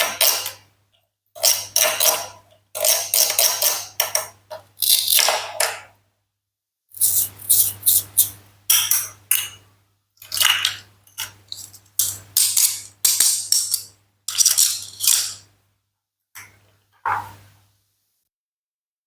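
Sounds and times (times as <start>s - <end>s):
toy food being cut: 1.4s - 5.4s, 7.0s - 8.4s.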